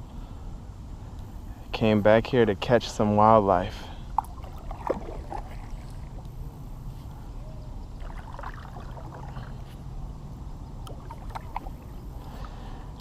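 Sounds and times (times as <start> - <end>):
low steady rumble: 0.0 - 13.0
water lapping and dripping: 4.1 - 6.4, 8.0 - 9.7, 10.8 - 12.6.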